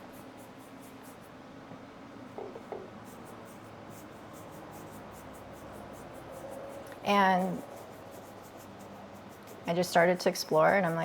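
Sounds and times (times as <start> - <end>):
paintbrush scratching on wood: 3.0 - 11.0.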